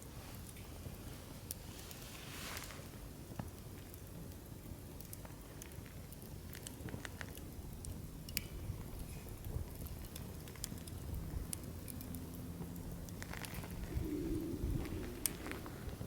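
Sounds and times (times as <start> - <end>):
fire low rumble: 0.0 - 16.0
crackles and pops from logs: 3.3 - 16.0.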